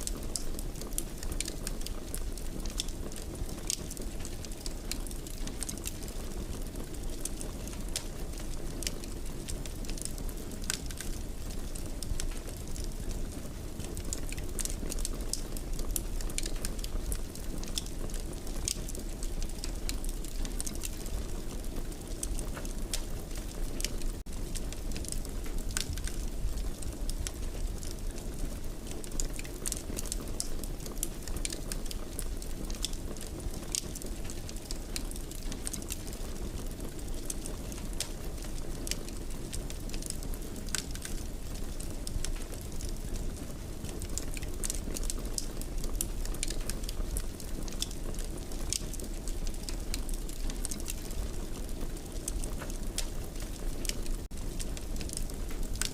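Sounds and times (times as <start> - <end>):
fire crackling and popping: 0.0 - 55.9
low rumble of flames: 0.0 - 55.9.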